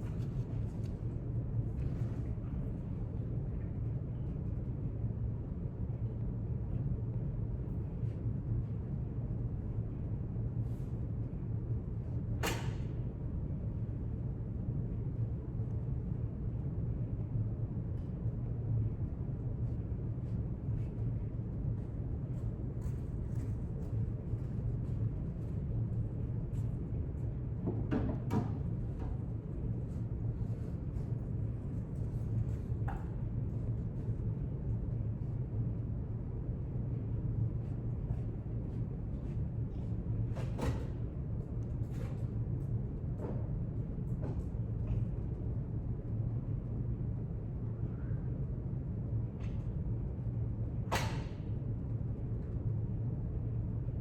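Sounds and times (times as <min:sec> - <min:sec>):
low room rumble: 0:00.0 - 0:54.0.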